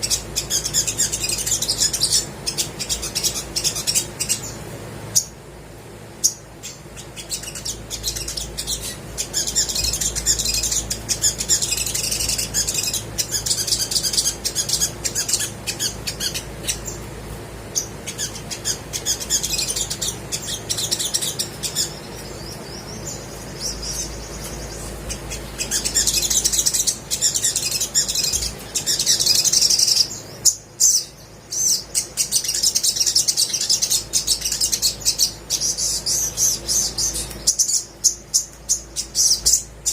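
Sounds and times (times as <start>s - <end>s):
bird chirping and trilling: 0.0s - 5.4s, 6.1s - 39.9s.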